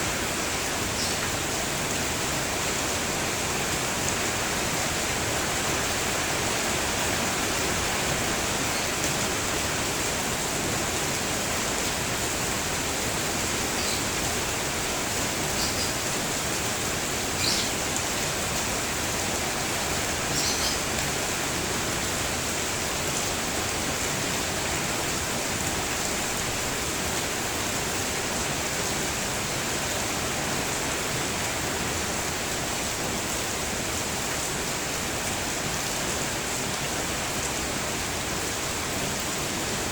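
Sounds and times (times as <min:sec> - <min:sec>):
steady rain falling: 0:00.0 - 0:39.9
bird chirps: 0:20.3 - 0:20.8.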